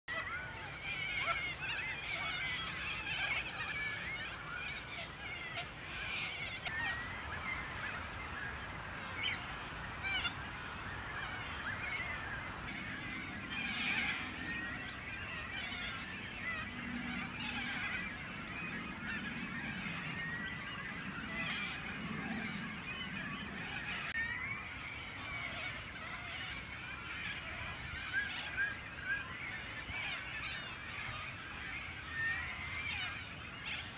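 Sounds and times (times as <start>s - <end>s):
low honk-like bird calls: 0.2s - 24.2s.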